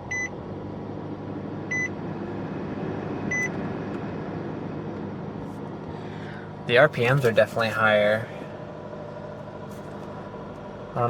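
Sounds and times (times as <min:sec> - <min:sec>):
car engine idling: 0:00.0 - 0:11.0
dashboard warning chime: 0:00.1 - 0:00.3, 0:01.7 - 0:01.9, 0:03.3 - 0:03.5.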